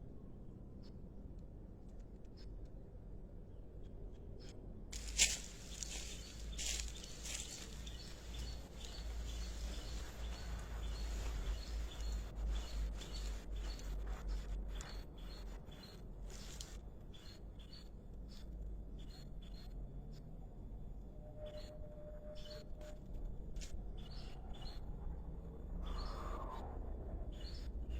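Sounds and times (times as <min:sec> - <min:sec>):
bird chirping: 0:03.8 - 0:19.8
low rumble: 0:04.9 - 0:17.1.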